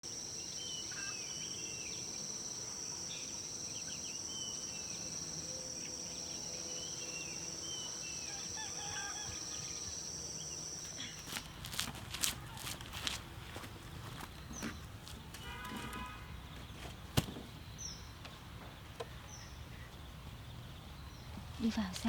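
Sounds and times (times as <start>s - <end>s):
insects droning: 0.0s - 22.0s
birds chirping: 0.3s - 22.0s.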